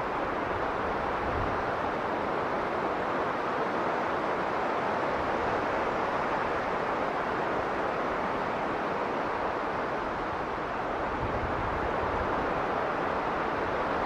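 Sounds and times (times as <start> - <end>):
blizzard wind blowing: 0.0 - 14.0.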